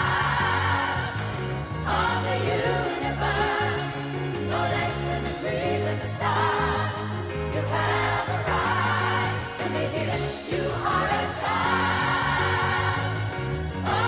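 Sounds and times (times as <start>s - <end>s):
bass line: 0.0s - 14.0s
voices singing: 0.0s - 14.0s.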